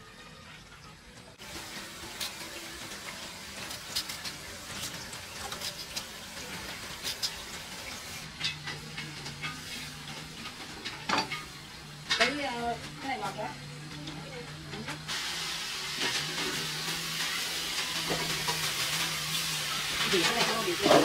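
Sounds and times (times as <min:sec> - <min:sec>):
food sizzling in a pan: 0:01.4 - 0:21.0.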